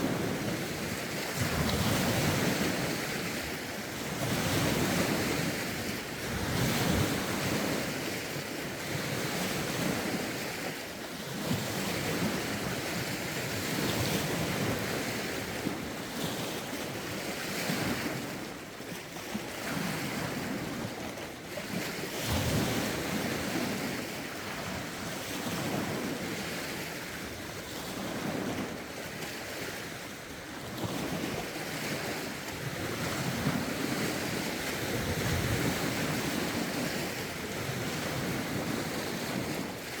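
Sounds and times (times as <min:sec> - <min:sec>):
wind gusting across microphone: 0:00.0 - 0:08.0, 0:30.6 - 0:40.0
lake waves washing in: 0:00.0 - 0:40.0.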